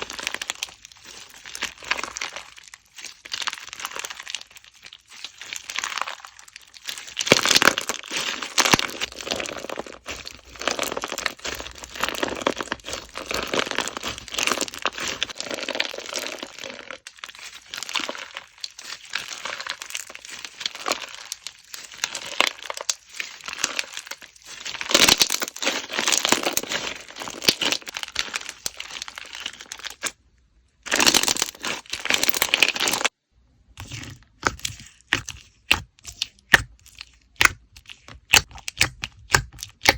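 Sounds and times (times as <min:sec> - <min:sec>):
slime crackling and crinkling: 0:00.0 - 0:39.9.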